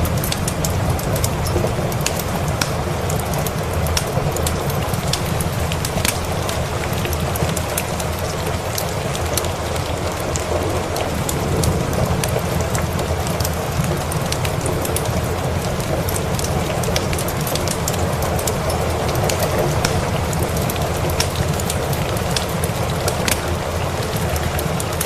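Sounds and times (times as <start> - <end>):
steady rain: 0.0 - 25.0
wood fire crackling and popping: 0.0 - 25.0.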